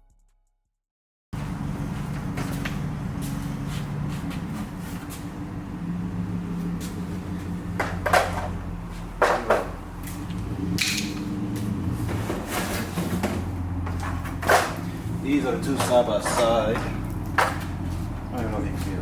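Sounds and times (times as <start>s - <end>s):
hard objects knocking and clunking: 7.7s - 14.9s, 15.6s - 17.9s.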